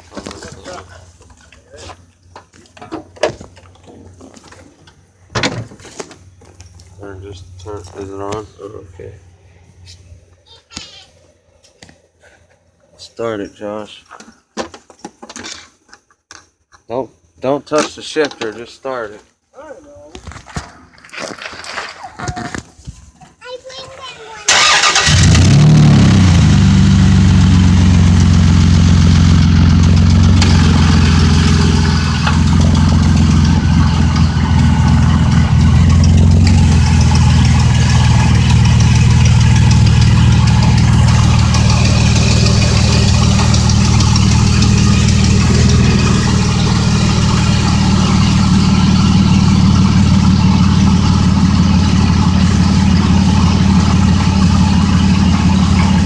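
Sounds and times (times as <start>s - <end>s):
pickup truck engine idling: 24.5s - 56.0s.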